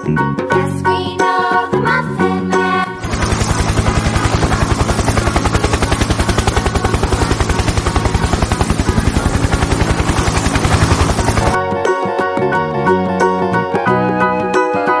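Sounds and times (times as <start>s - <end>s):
helicopter rotor chopping: 2.8s - 11.6s.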